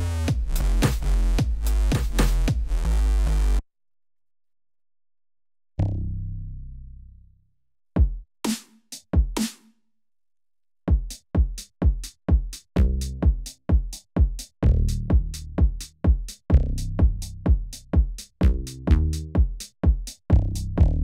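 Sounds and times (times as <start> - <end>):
electronic hi-hat hits: 0.0 - 2.8
electronic bass drum tones: 0.0 - 3.6, 12.8 - 19.6, 20.3 - 21.0.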